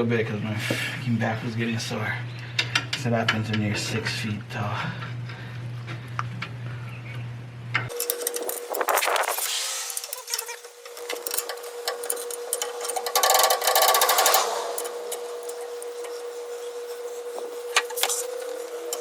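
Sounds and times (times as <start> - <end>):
steady thin whine: 7.8 - 19.0
hand tools clicking and rattling: 7.9 - 8.9, 10.0 - 16.1.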